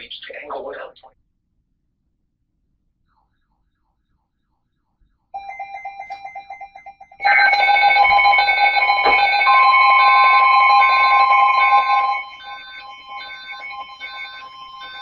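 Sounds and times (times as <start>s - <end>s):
rapidly pulsing beep: 5.4s - 15.0s
repeating beeps and steady tones: 5.4s - 15.0s.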